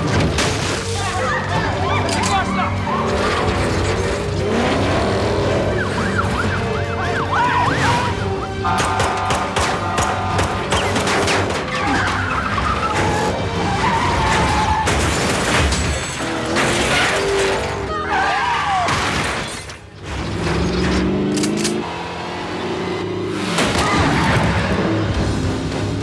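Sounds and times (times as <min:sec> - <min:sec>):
car crashes: 0:00.0 - 0:05.0, 0:08.8 - 0:17.9, 0:18.7 - 0:21.1, 0:23.4 - 0:25.8
car engines: 0:00.0 - 0:26.0.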